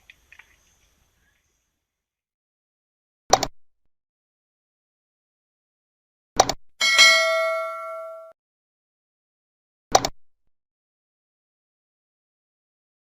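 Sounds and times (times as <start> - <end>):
bell ding: 6.8 - 8.4.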